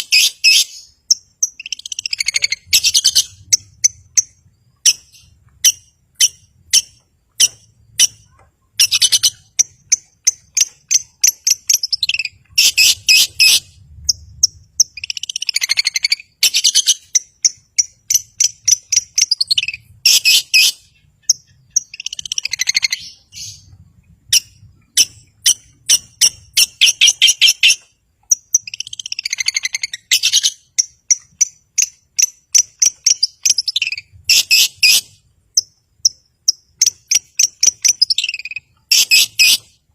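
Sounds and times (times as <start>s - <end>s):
shrike singing trills: 0.0s - 39.8s.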